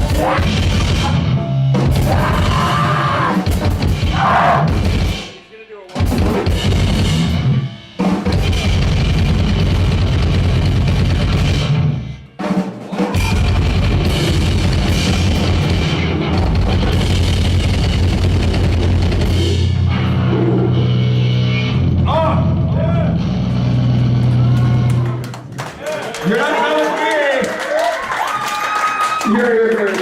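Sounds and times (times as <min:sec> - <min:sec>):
fast drumming: 0:00.0 - 0:19.8
distorted noise music: 0:13.2 - 0:25.0
low amplifier drone: 0:13.4 - 0:25.3.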